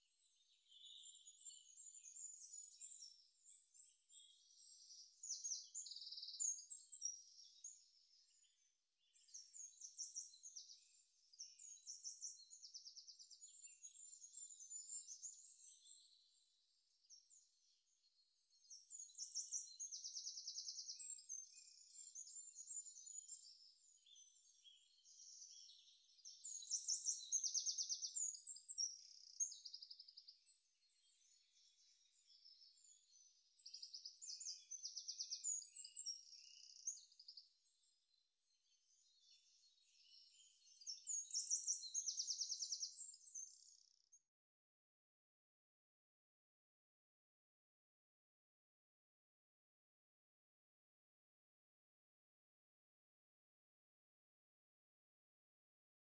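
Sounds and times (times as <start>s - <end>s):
songbirds chirping and trilling: 0.0s - 44.3s.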